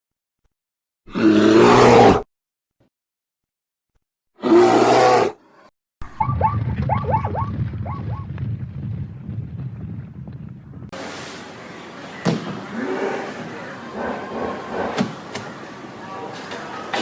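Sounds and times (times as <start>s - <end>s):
animal roar: 1.1s - 2.3s, 4.4s - 5.4s, 12.7s - 15.0s
low rumble: 6.1s - 11.0s.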